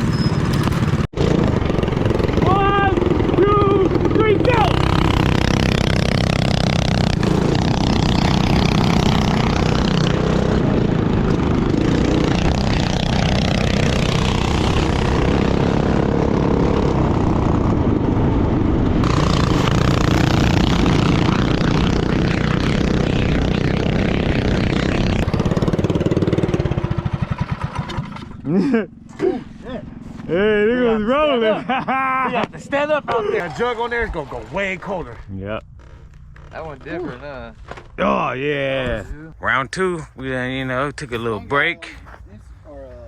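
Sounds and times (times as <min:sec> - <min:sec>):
small motorbike engine running: 0:00.0 - 0:18.0, 0:19.0 - 0:31.0.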